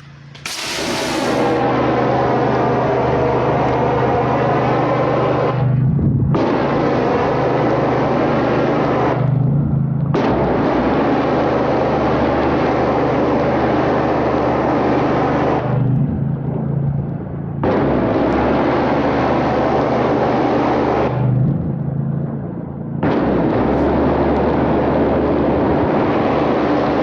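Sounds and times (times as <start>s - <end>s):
pressure washer engine: 0.0s - 2.1s
water spraying from wand: 0.5s - 1.6s.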